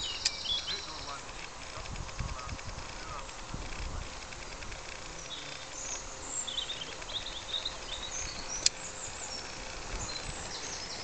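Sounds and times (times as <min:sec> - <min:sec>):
faint steady hum: 0:00.0 - 0:11.0
small birds chirping: 0:00.0 - 0:11.0
sharp click: 0:08.5 - 0:08.8.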